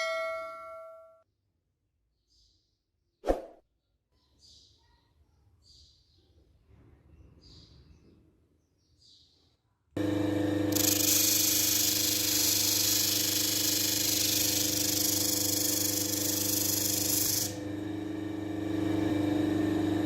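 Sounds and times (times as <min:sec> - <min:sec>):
power tool motor humming: 0:10.0 - 0:20.0.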